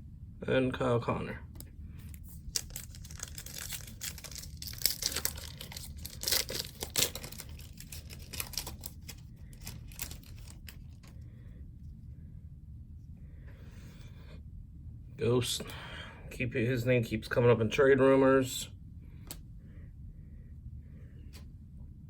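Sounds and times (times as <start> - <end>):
cards rustling: 1.6 - 11.2
wrapper torn and crinkled: 2.1 - 11.1.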